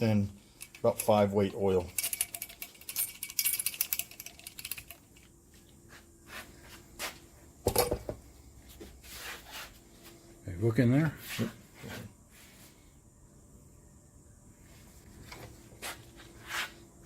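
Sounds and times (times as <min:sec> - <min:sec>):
metal parts clattering: 0:00.6 - 0:05.3
shock absorber parts clicking: 0:01.8 - 0:05.3.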